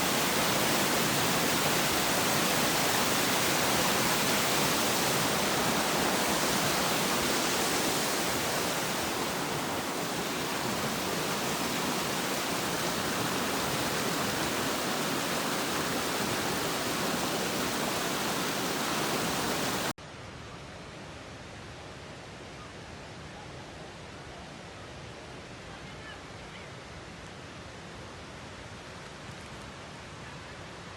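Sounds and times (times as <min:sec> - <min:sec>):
flowing water rushing: 0:00.0 - 0:20.0
quiet steady hiss: 0:00.0 - 0:26.2.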